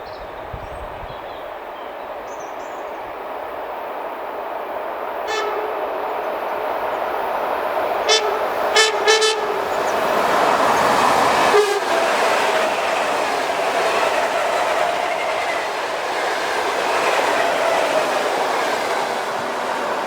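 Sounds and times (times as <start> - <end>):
electric train running: 4.9 - 20.0
train horn short blasts: 5.3 - 6.2, 8.0 - 10.1, 11.4 - 12.3.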